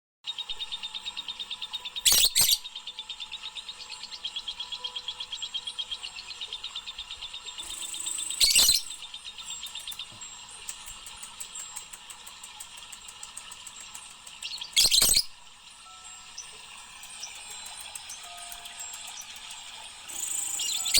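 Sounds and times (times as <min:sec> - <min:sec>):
bird chirping: 0:00.3 - 0:20.9
soft rapid ticks: 0:03.1 - 0:20.9.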